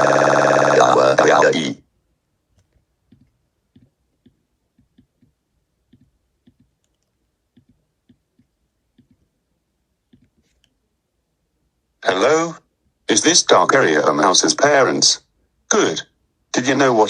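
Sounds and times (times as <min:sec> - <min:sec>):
faint soft clicks: 0:02.5 - 0:09.2.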